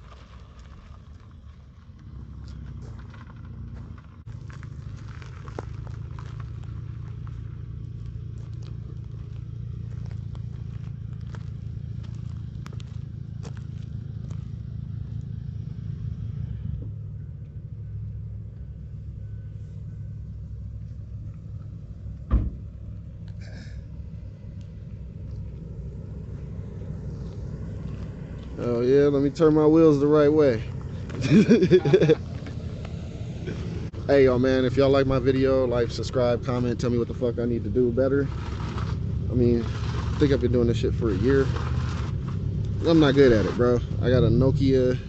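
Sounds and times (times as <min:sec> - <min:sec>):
car engine idling: 0:00.0 - 0:45.0
faint beeps: 0:17.1 - 0:20.6.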